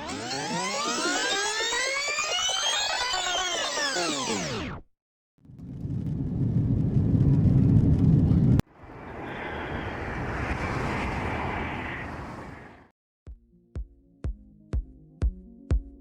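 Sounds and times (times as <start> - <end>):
airplane low rumble: 5.5 - 12.9
airplane rushing noise: 5.5 - 12.9.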